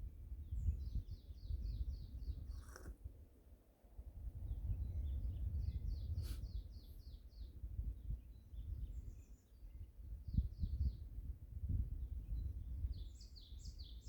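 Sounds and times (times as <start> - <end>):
low wind rumble: 0.0 - 14.0
small birds chirping: 0.4 - 3.0, 4.4 - 11.0, 12.0 - 14.0.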